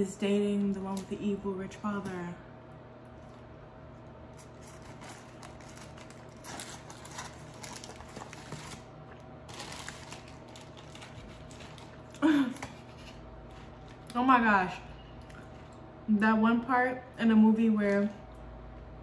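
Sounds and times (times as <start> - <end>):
low room hum: 0.0 - 19.0
faint crunching while chewing: 15.2 - 15.9.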